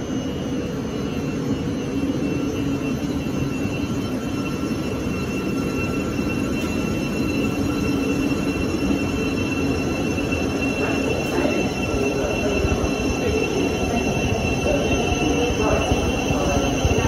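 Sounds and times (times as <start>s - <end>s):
high-pitched whine: 0.0s - 17.0s
train wheels rumbling on track: 6.5s - 17.0s.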